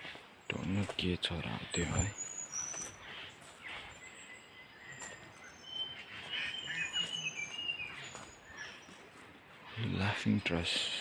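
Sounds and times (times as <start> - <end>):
birds chattering: 0.0 - 11.0
birds whistling: 1.5 - 10.2.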